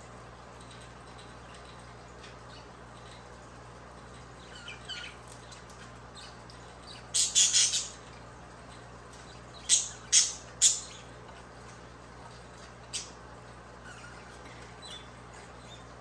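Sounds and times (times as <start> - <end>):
budgerigars chirping and squawking: 4.3 - 16.0.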